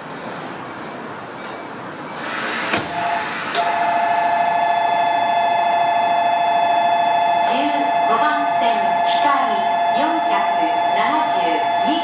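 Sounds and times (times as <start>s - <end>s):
two-tone electronic departure bell: 3.0s - 12.0s.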